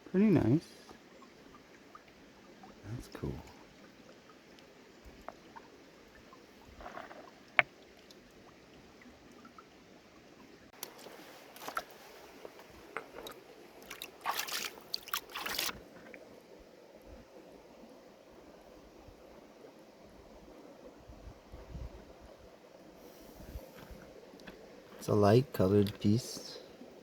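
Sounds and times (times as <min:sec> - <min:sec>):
running water: 0:00.0 - 0:27.0
stones clacking and scraping: 0:06.8 - 0:07.7.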